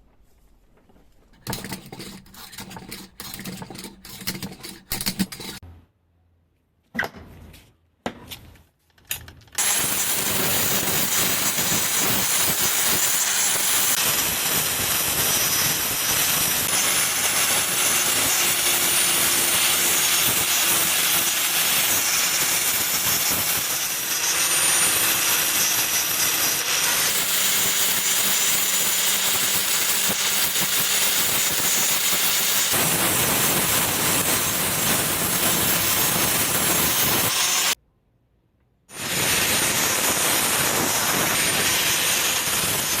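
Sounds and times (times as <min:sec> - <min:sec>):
workshop machine rushing noise: 0:09.6 - 0:24.5.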